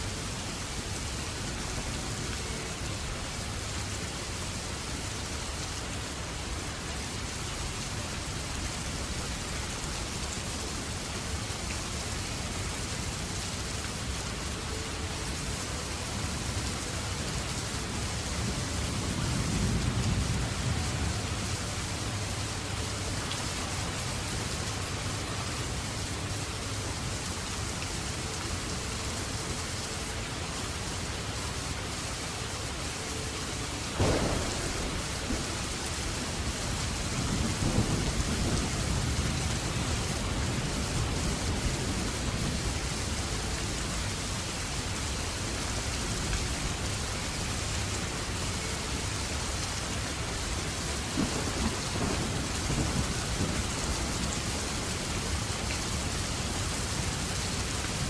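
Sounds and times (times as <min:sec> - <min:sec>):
steady rain falling: 0:00.0 - 0:58.0
low rumble of thunder: 0:33.9 - 0:42.8, 0:51.0 - 0:58.0
sharp thunderclap: 0:34.0 - 0:36.4.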